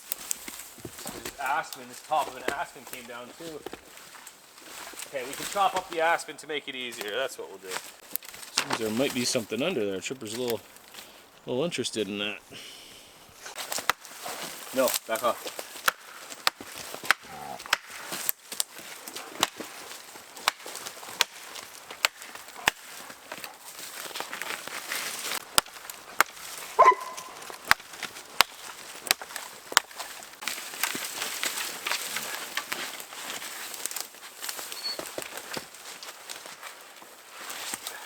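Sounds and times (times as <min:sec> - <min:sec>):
axe chopping wood: 0:15.5 - 0:18.7, 0:25.4 - 0:30.2.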